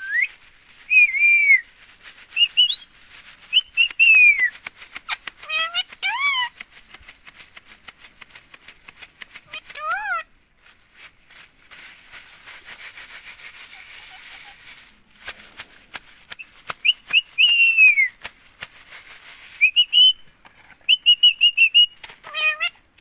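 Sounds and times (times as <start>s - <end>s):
parakeet whistling: 0.9s - 1.6s, 16.8s - 18.1s
parakeet chirpy call: 5.4s - 6.5s, 9.5s - 10.3s, 21.0s - 22.8s
scattered clicks: 6.6s - 9.8s.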